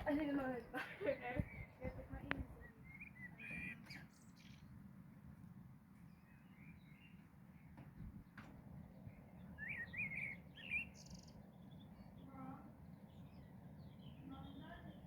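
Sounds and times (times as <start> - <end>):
steady low rumble: 0.0 - 5.4
small birds chirping: 0.0 - 15.0.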